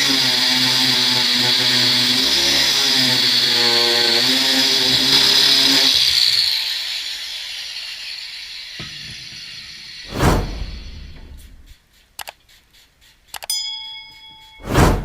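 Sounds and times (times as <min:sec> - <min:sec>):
angle grinder whine on steel: 0:00.0 - 0:11.7.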